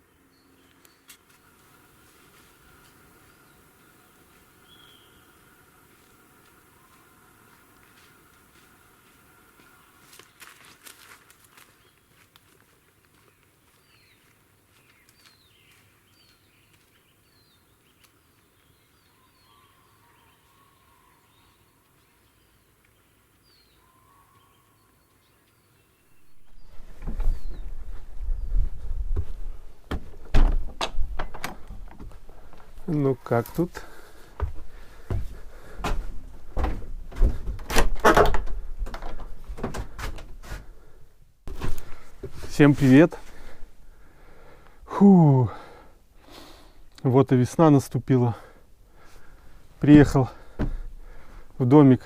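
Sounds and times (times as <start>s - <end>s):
small birds chirping: 0.0s - 29.8s
bird whistle: 4.7s - 5.3s
door creaking: 26.8s - 27.7s, 29.9s - 32.2s, 35.8s - 40.5s
door knocks and clunks: 26.9s - 27.7s, 29.1s - 32.2s, 34.4s - 40.4s, 50.5s - 50.9s.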